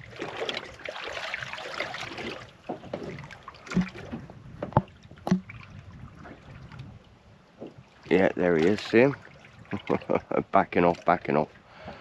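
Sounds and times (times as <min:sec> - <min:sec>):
water sloshing against boat hull: 0:00.0 - 0:12.0
knocks on boat: 0:02.6 - 0:05.5.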